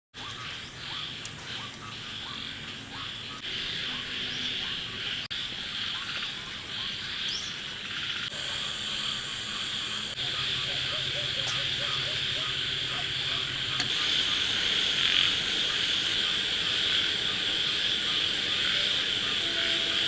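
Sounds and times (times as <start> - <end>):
insect chorus trilling: 0.2 - 20.0
rising frog calls: 0.2 - 20.0.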